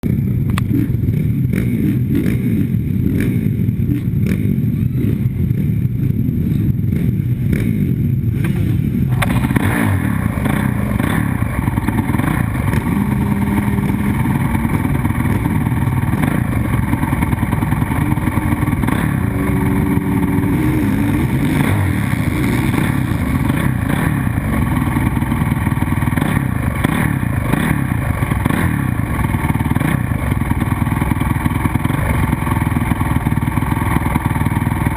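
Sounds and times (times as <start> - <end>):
dirt bike engines revving: 0.0 - 34.9.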